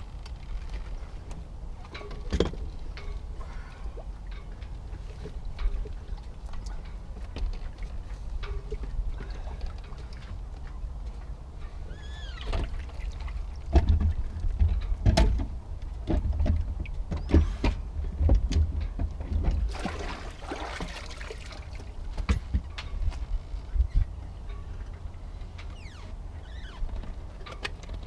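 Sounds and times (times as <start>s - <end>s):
short squeak: 11.9s - 12.5s
handling knocks and clicks: 13.7s - 19.7s.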